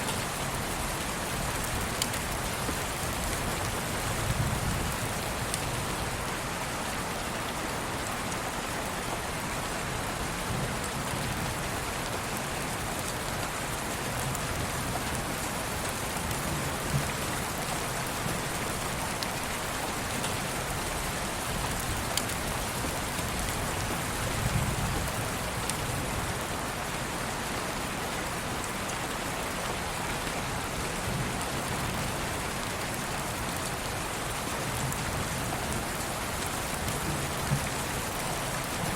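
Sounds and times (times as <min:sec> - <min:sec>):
rain hiss: 0:00.0 - 0:38.9
raindrop ticks: 0:01.6 - 0:03.8.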